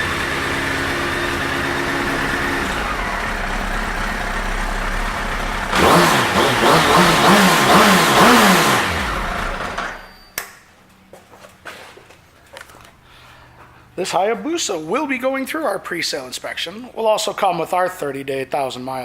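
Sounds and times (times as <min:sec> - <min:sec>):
motorcycle engine idling and revving: 0:00.0 - 0:10.1.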